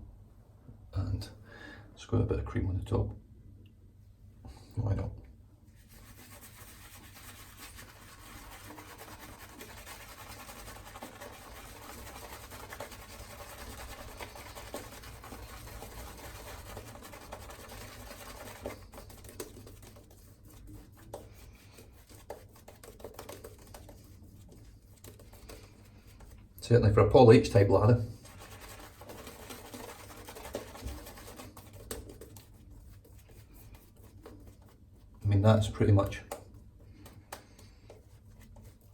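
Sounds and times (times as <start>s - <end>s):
shaving brush scratching lather: 5.8s - 26.5s, 27.5s - 36.4s, 37.8s - 38.9s.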